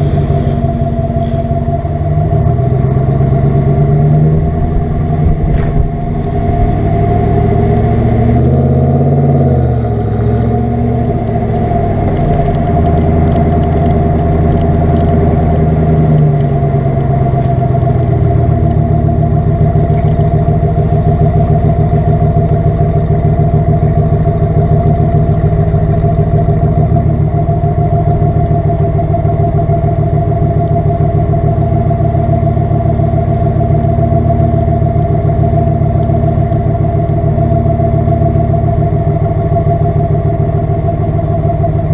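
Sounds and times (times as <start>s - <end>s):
truck exhaust while driving: 0.0s - 41.9s
light rattling ticks: 10.4s - 17.7s, 19.8s - 20.4s.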